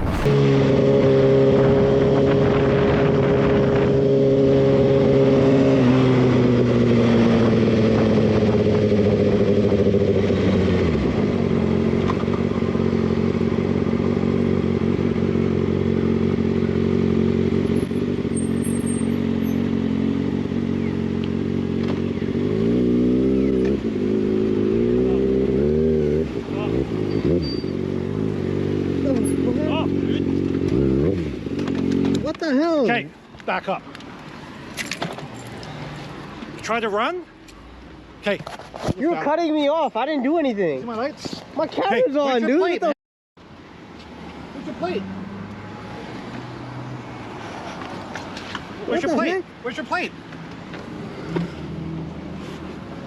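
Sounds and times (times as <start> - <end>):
motorcycle engine revving: 0.0 - 32.3.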